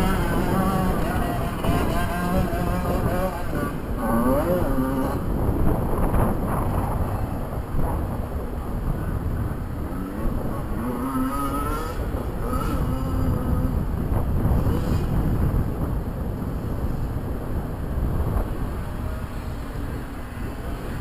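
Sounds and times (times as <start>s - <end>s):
dirt bike engine revving: 0.0s - 7.0s, 9.9s - 15.9s
wind rumble on microphone: 0.0s - 21.0s.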